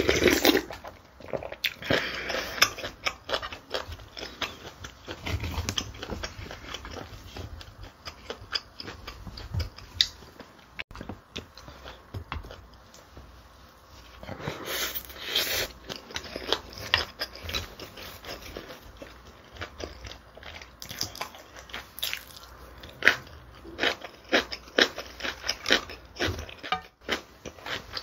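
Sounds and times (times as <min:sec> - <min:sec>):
chewing crackles and clicks: 0:15.8 - 0:28.0.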